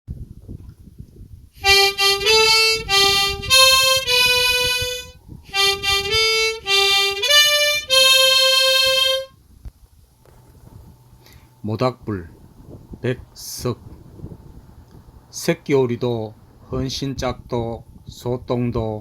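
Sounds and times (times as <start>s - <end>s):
harmonica slow melody: 1.6s - 9.4s
low uneven rumbling: 9.5s - 18.5s.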